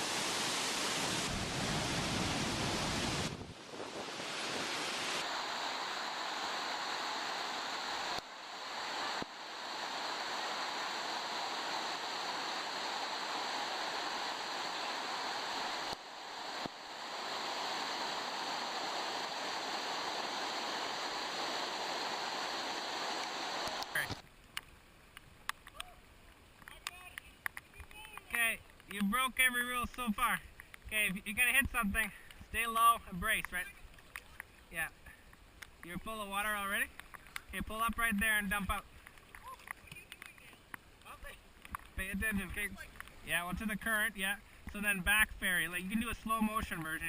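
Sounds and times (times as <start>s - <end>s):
fast-flowing water rushing: 0.0s - 24.2s.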